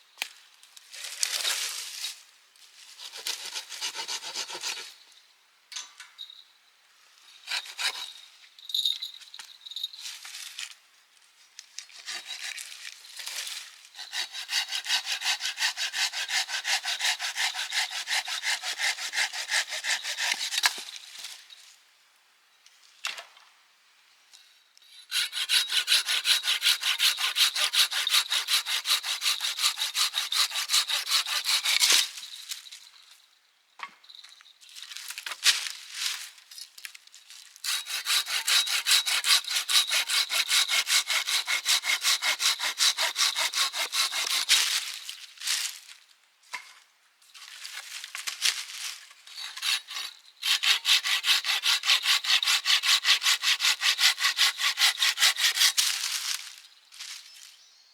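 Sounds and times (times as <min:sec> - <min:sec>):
hand saw cutting firewood: 0:03.0 - 0:05.0, 0:07.4 - 0:08.2, 0:11.9 - 0:20.9, 0:25.1 - 0:32.3, 0:37.6 - 0:45.0, 0:49.3 - 0:56.5.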